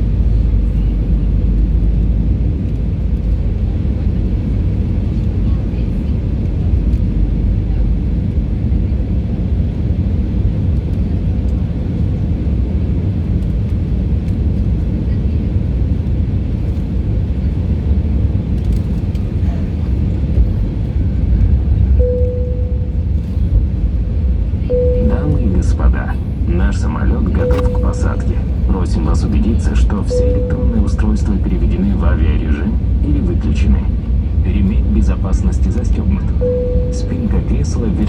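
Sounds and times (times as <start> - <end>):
airliner cabin engine rumble: 0.0 - 38.0
steady tone: 22.0 - 23.7, 24.6 - 33.0, 36.0 - 38.0.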